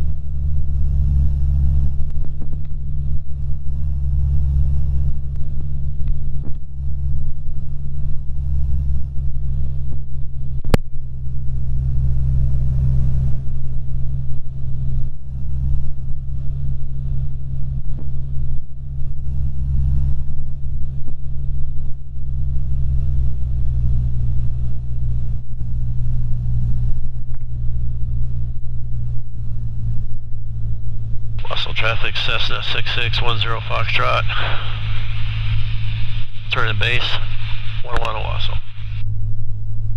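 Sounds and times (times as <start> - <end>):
airplane engine and propeller droning: 0.0 - 39.9.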